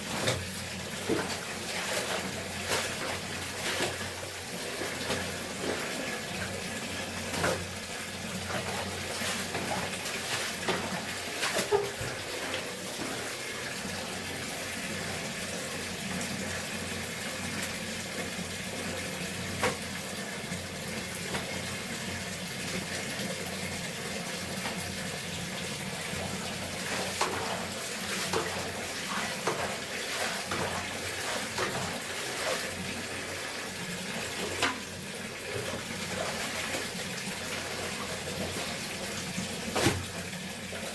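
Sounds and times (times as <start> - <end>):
water splashes: 0.0 - 15.2, 24.5 - 40.4
tap water running: 0.0 - 40.9.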